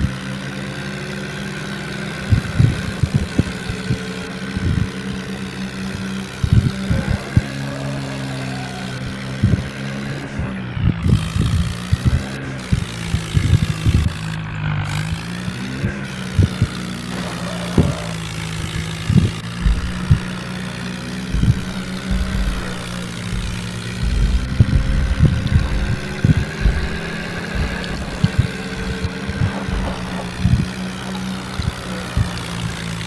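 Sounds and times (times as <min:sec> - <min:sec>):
tractor engine running: 0:00.0 - 0:33.0
short low thumps: 0:16.4 - 0:33.0.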